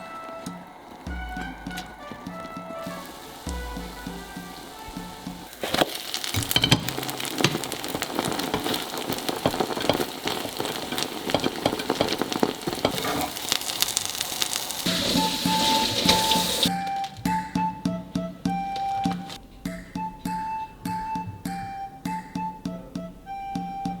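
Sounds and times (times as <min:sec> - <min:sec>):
background music: 0:00.0 - 0:05.6, 0:14.9 - 0:24.0
egg sizzling in oil: 0:00.0 - 0:17.1.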